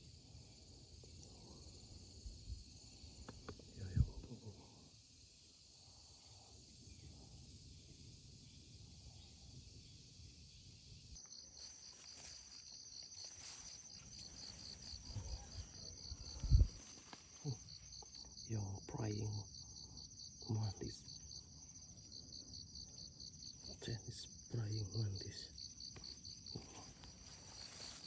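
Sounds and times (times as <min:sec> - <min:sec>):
insects buzzing: 0:00.0 - 0:28.0
pulsed insect trill: 0:00.0 - 0:28.0.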